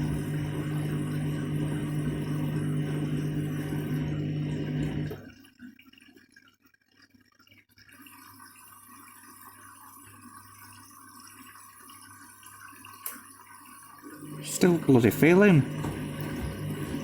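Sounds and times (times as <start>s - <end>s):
washing machine hum: 0.0s - 5.4s, 13.4s - 17.0s
water trickling and dripping: 4.0s - 14.8s.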